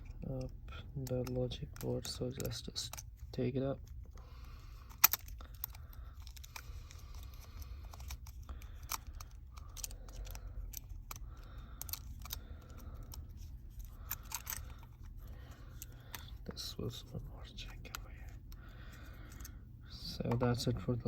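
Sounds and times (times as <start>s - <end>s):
repair tools clicking and scraping: 0.0s - 16.6s
steady low hum: 0.0s - 21.0s.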